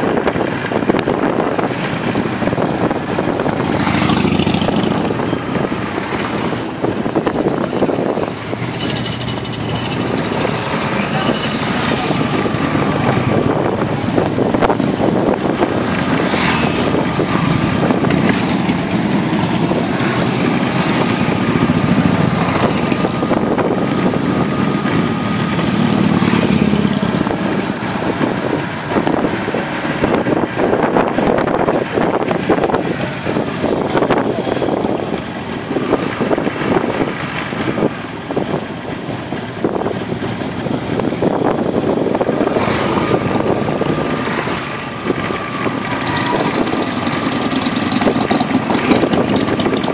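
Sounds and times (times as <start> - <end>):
motorcycle engines running: 0.0 - 49.9
people talking: 10.9 - 13.8, 45.9 - 46.8.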